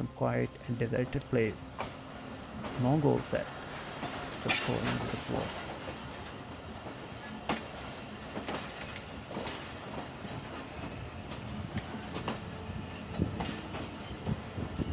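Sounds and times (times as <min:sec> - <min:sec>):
train rolling rumble: 0:00.0 - 0:14.9
wheels clacking over rails: 0:01.6 - 0:12.5.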